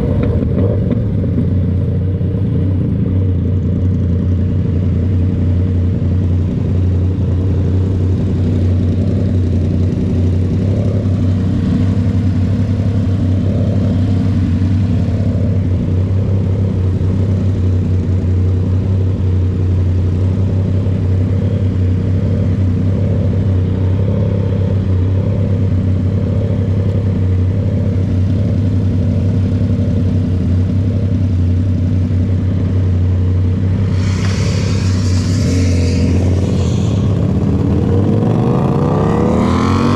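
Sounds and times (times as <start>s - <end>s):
motorcycle engine: 0.0s - 39.9s
rush of higher hiss: 33.7s - 38.0s.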